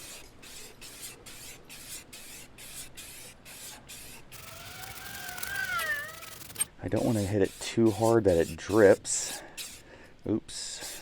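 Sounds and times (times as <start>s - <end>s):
spray paint can hissing: 0.5s - 9.0s, 9.6s - 9.8s.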